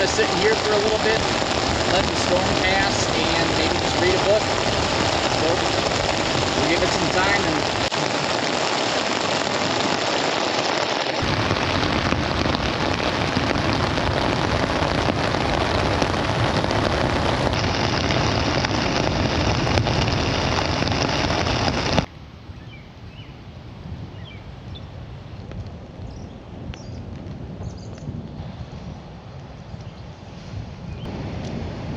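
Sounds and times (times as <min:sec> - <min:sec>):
heavy rain on a tent: 0:00.0 - 0:22.1.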